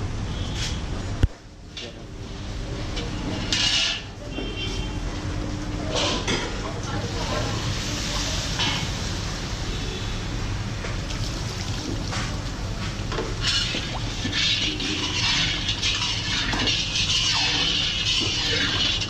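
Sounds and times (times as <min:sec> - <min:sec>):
liquid splashing in a pan: 0:11.0 - 0:19.0.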